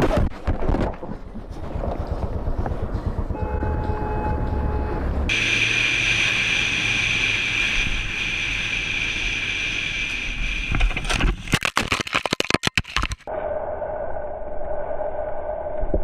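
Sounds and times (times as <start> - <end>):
motorcycle engine whine: 1.4 - 11.1.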